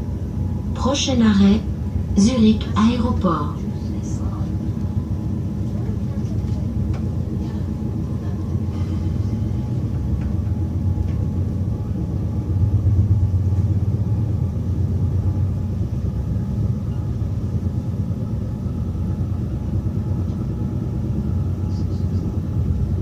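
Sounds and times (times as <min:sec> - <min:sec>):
train rumbling inside carriage: 0:00.0 - 0:23.0.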